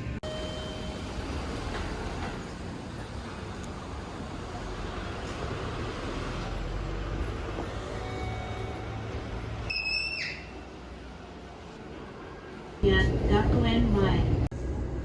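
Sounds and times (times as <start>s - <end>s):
train rumbling in motion: 0.0s - 15.0s
brief high-pitched tone: 7.7s - 10.4s.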